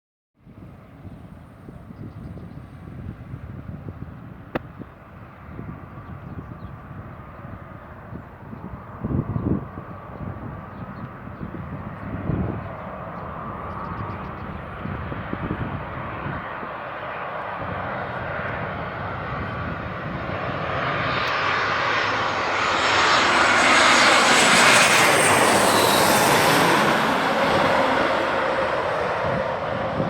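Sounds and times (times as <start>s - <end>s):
airliner engine noise overhead: 0.4s - 30.0s.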